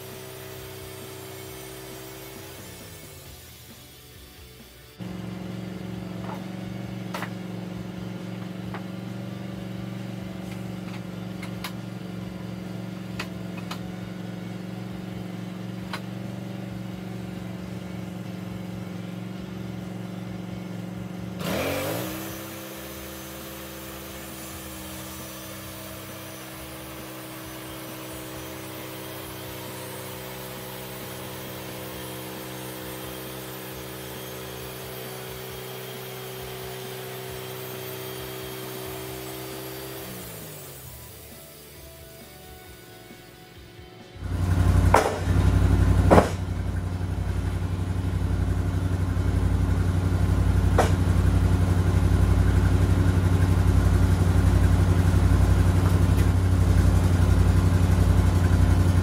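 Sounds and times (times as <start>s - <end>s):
saw blade hissing through log: 0.0s - 4.6s, 21.4s - 41.9s
gas engine running: 0.0s - 59.0s.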